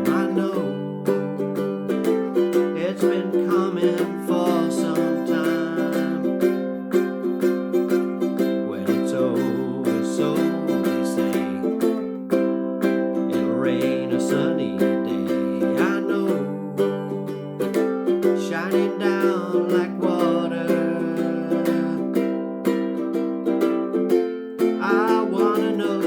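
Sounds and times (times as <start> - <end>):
ukulele strumming: 0.0 - 26.0.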